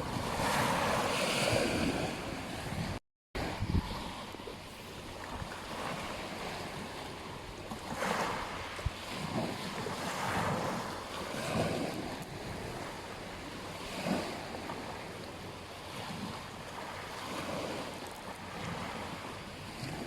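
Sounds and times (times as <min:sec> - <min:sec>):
wind buffeting microphone: 0:00.0 - 0:12.9
ocean surf washing onto beach: 0:00.0 - 0:20.0.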